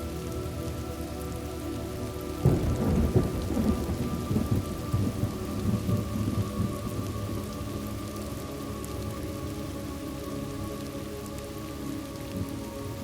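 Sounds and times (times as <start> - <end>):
steady rain: 0.0 - 13.0
thunder rumbling: 2.4 - 8.0.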